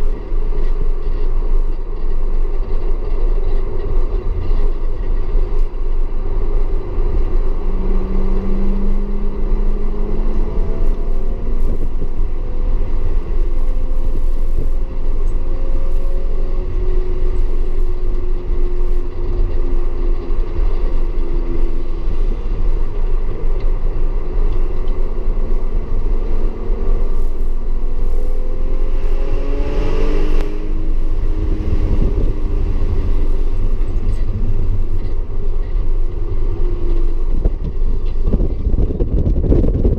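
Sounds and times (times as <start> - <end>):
car engine revving: 19.3 - 38.5.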